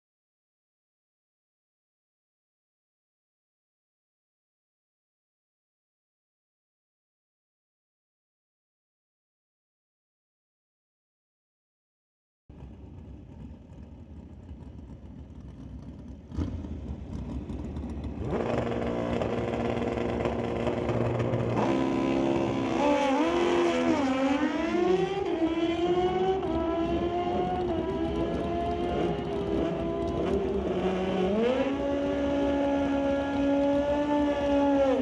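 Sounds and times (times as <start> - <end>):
motorcycle engines revving: 12.6 - 35.0.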